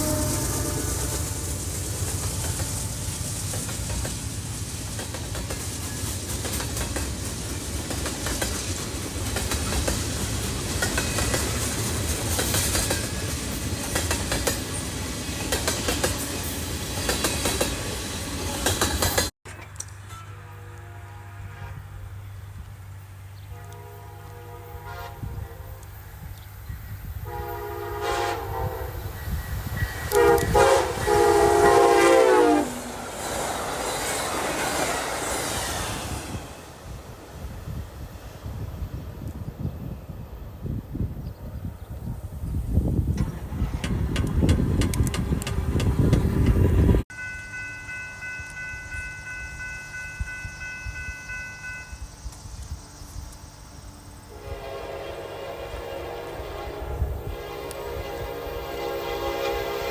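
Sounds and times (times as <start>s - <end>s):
locomotive air horn blasts: 0.0s - 1.6s, 20.1s - 22.4s, 23.4s - 26.0s, 27.2s - 33.0s, 54.3s - 59.9s
train rumbling by: 0.0s - 59.9s.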